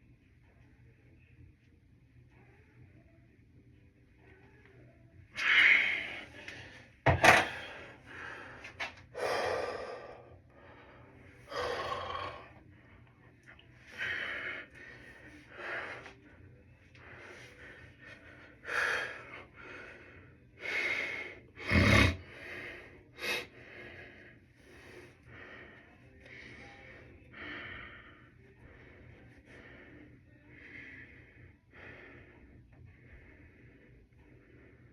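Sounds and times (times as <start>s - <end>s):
person breathing hard: 5.4s - 12.6s, 13.9s - 16.2s, 17.0s - 34.9s.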